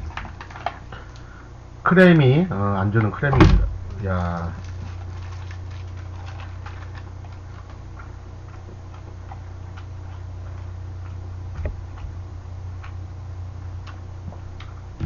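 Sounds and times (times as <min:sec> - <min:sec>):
steady low hum: 0:00.0 - 0:15.0
chewing with wet mouth clicks: 0:04.5 - 0:11.2, 0:13.8 - 0:14.0.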